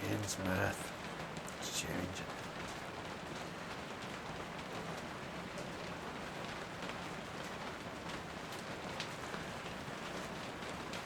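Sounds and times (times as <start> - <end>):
rain pattering on surfaces: 0.0 - 11.0.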